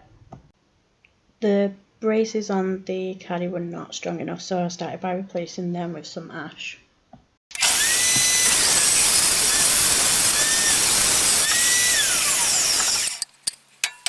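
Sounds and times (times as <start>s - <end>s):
woodworking power tool running: 7.5s - 13.2s.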